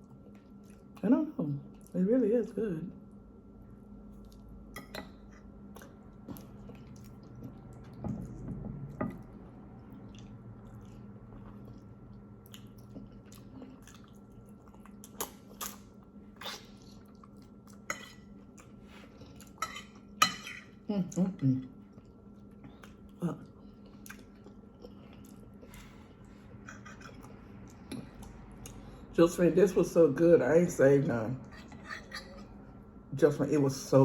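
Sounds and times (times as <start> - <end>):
chewing: 0.0 - 1.0, 4.1 - 20.8, 21.7 - 29.0
faint steady hum: 0.0 - 34.0.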